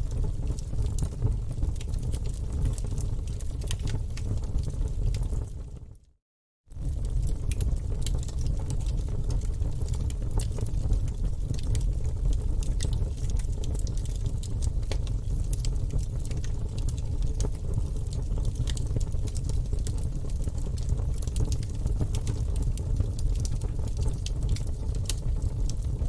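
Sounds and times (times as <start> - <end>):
logs burning in fireplace: 0.0 - 6.0, 6.7 - 26.0.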